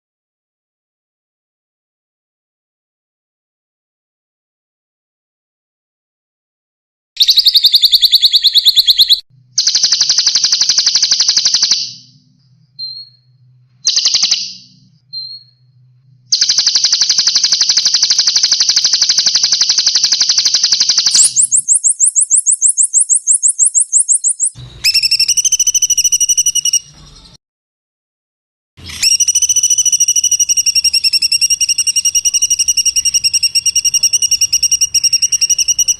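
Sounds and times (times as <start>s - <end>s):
songbird trills: 7.2s - 27.4s, 29.0s - 35.9s.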